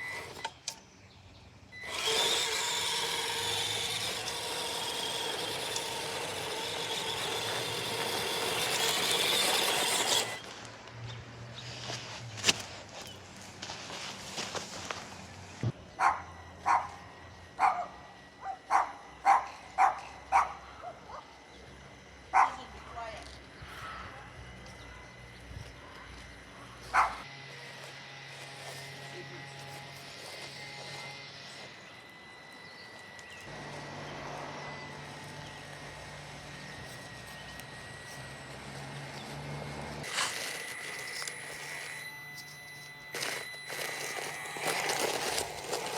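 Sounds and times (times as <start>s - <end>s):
toy car motor whining: 0.0s - 0.8s, 1.8s - 10.6s, 16.0s - 45.9s
dog barking: 16.0s - 17.0s, 17.6s - 21.2s, 22.3s - 22.6s, 26.9s - 27.2s.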